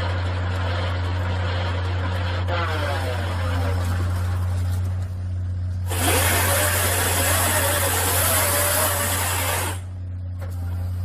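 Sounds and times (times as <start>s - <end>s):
machinery engine hum: 0.0s - 11.0s
hissing whining machine: 5.8s - 11.0s.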